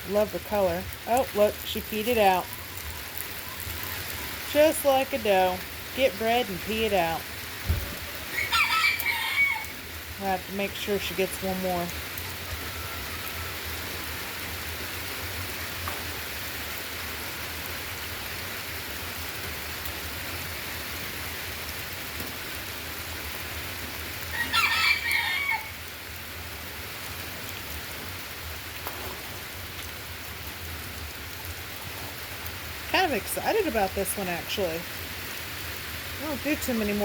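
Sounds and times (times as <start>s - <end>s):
steady rain falling: 0.0s - 37.0s
rooster crowing: 7.9s - 9.9s, 12.2s - 13.9s, 24.3s - 25.8s.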